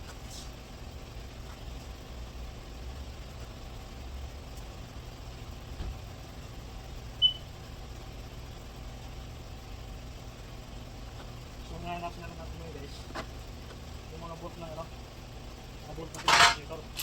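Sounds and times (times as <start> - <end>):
low background hum: 0.0 - 17.0
short high-pitched beep: 7.2 - 7.4.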